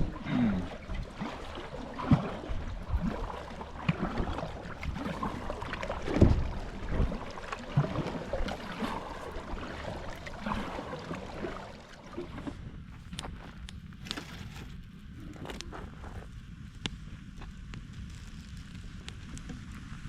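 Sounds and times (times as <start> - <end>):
water running and gurgling: 0.0 - 12.9
wind rumbling on microphone: 0.0 - 20.0.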